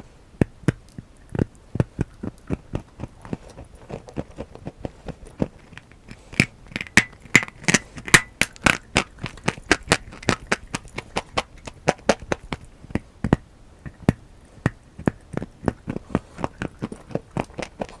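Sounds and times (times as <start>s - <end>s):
dry clay crunching and cracking: 0.4s - 18.0s.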